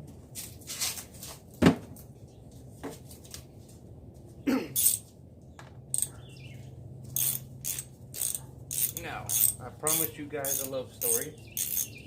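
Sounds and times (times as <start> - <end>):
tools knocking and clicking: 5.6 - 6.2, 7.1 - 12.0.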